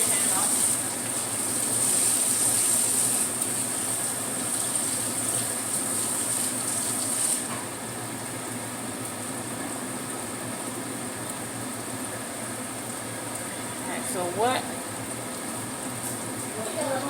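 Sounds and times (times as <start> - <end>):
tofu sizzling in oil: 0.0 - 7.9
kitchen tap running: 0.0 - 17.0.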